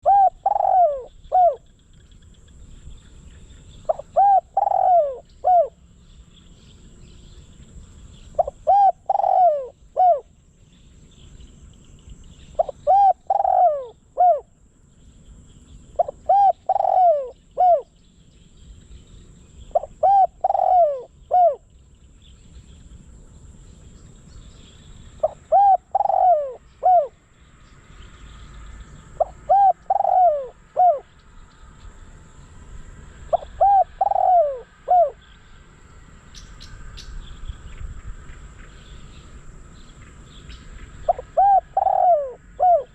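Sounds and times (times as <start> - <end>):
dove cooing: 0.0 - 1.7, 3.9 - 5.9, 8.3 - 10.3, 12.6 - 14.5, 16.0 - 17.9, 19.7 - 21.6, 25.2 - 27.2, 29.2 - 31.1, 33.3 - 35.2, 41.0 - 42.9.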